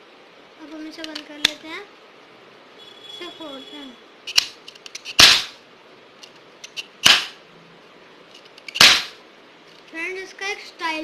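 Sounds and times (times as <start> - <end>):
cap gun bangs: 5.2 - 5.6, 7.0 - 7.4, 8.8 - 9.2.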